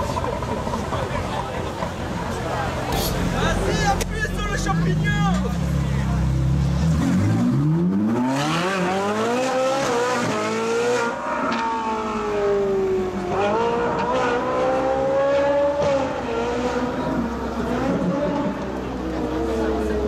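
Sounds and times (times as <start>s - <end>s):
car engine revving: 5.5s - 20.0s.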